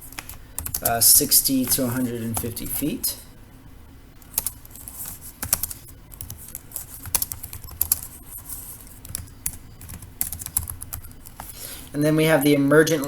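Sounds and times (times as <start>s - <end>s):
keyboard typing clicks: 0.0s - 1.0s, 4.2s - 11.6s.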